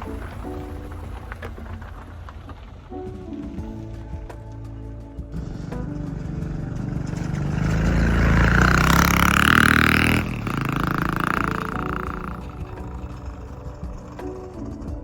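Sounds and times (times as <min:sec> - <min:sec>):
vehicle engine passing by: 0:05.4 - 0:13.8.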